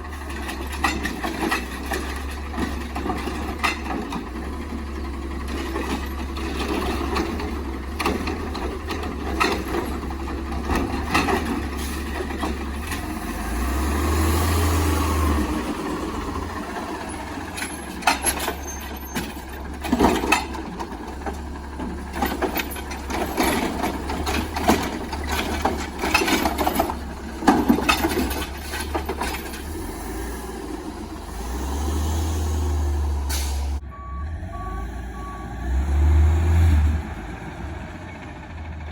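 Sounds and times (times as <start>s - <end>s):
garbage truck engine: 0.0s - 38.9s
loud clanks and bangs: 0.2s - 30.2s.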